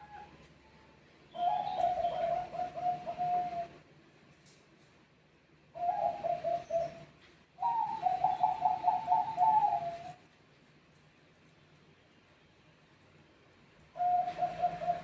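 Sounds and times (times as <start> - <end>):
dove cooing: 1.3 - 3.8, 5.7 - 10.2, 14.0 - 15.0.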